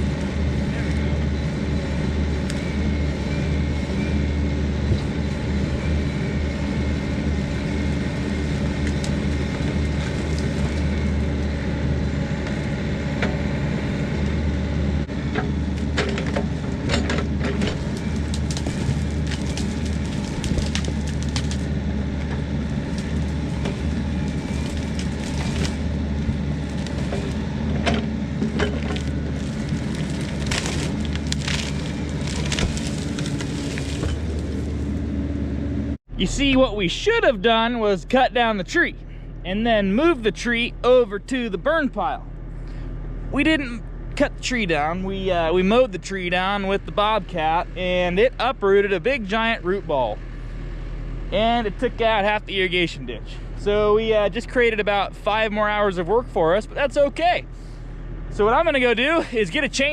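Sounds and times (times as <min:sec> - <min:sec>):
diesel engine running under load: 0:00.0 - 0:59.9
wood cracking and snapping: 0:08.2 - 0:11.2, 0:15.7 - 0:34.9.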